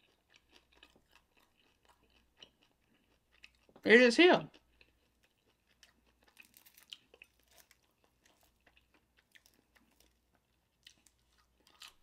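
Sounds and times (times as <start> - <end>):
crunchy chewing: 0.0 - 3.8, 4.5 - 12.0.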